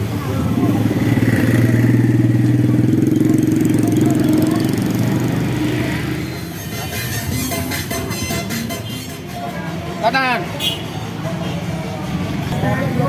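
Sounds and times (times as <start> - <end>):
motor vehicle engine running: 0.0 - 10.0.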